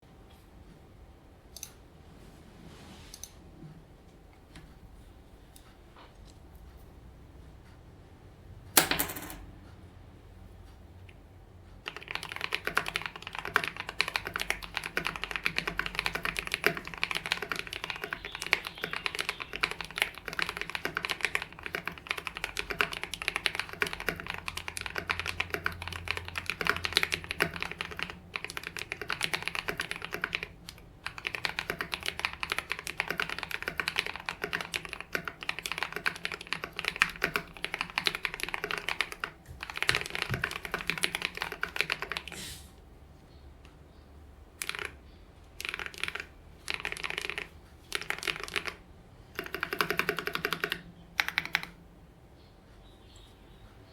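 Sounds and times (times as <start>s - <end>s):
typing on mechanical keyboard: 11.8s - 42.4s, 44.6s - 51.8s.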